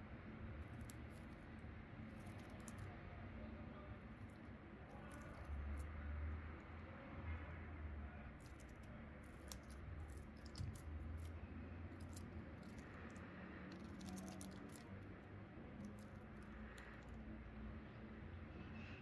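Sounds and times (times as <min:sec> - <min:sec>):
handling clicks and crackles: 0:11.9 - 0:15.1.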